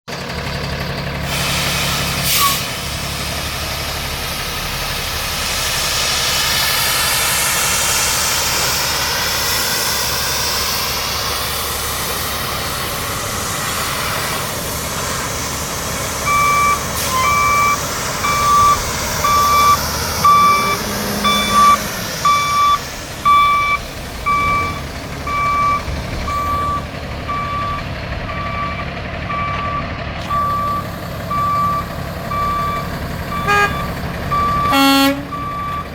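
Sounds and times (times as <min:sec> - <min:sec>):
diesel truck engine whining: 0:00.1 - 0:35.9
reversing alarm beeping: 0:10.8 - 0:14.4, 0:15.5 - 0:35.9.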